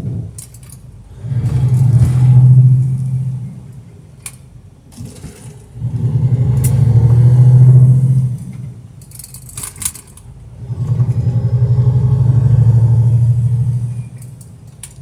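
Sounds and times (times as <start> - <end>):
truck diesel engine running: 5.7 - 8.9, 10.3 - 14.7.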